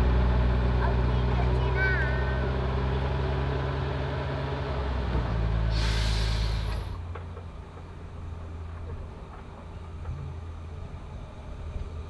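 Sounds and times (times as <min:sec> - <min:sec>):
train engine drone: 0:00.0 - 0:12.0
sharp hiss of air: 0:05.7 - 0:06.9
rolling carriages: 0:06.6 - 0:12.0.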